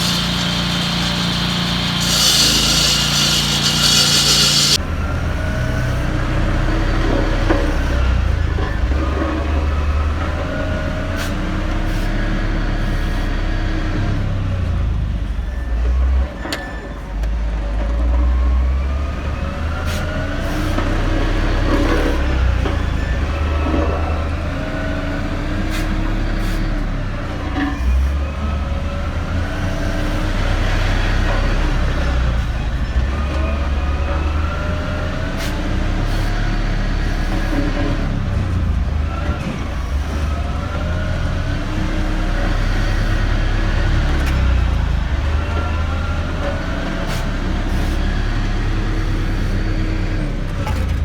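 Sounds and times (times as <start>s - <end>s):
diesel engine revving: 0.0s - 16.2s, 18.3s - 51.0s.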